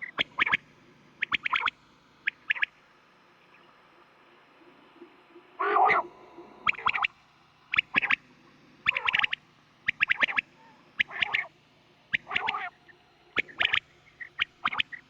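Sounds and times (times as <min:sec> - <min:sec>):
quail calling: 0:01.2 - 0:02.7, 0:04.6 - 0:07.1, 0:07.7 - 0:08.2, 0:08.8 - 0:11.5, 0:12.1 - 0:15.0.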